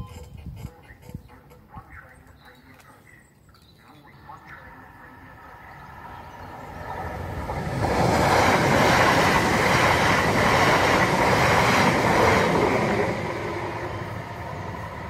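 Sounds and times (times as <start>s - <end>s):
train wheels on rails: 5.3s - 15.0s.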